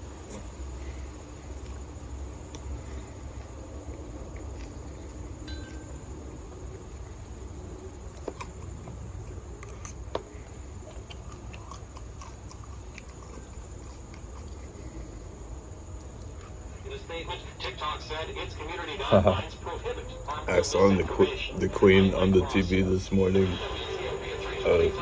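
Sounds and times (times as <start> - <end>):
faint high whine: 0.0 - 11.0, 13.1 - 25.0
steady low hum: 0.0 - 25.0
person chewing food: 0.2 - 16.8.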